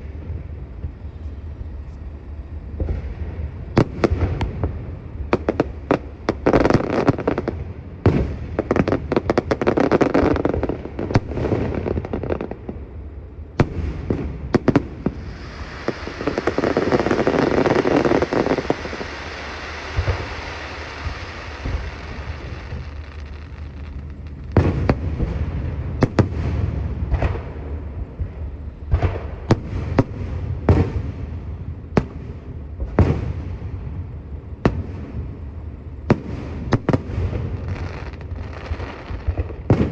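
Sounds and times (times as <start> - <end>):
fireworks hissing crackle: 0.0 - 12.8, 13.5 - 27.6, 36.1 - 39.9
fireworks bangs: 2.7 - 12.8, 13.5 - 33.8, 36.0 - 39.9.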